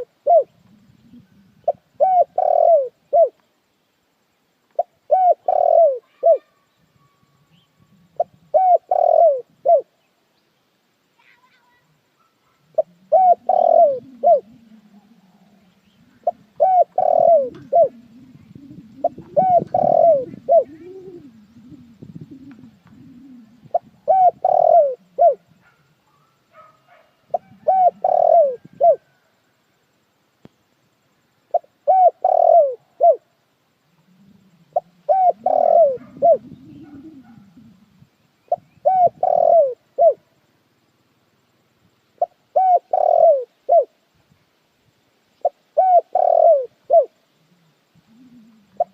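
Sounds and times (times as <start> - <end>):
dove cooing: 0.0 - 3.4, 4.7 - 10.0, 11.2 - 29.3, 31.5 - 40.3, 42.2 - 44.0, 45.4 - 48.9
soft low sound: 12.7 - 24.1.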